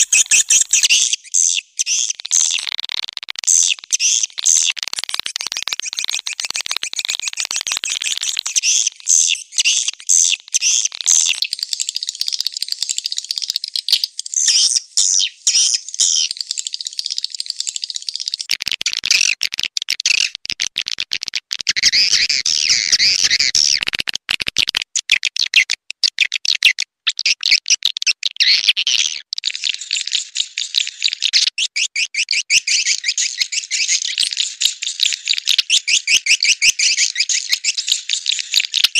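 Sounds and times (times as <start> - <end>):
swiftlet chirps and trills: 0.0 - 1.3
fast clicking pulses: 2.5 - 9.0.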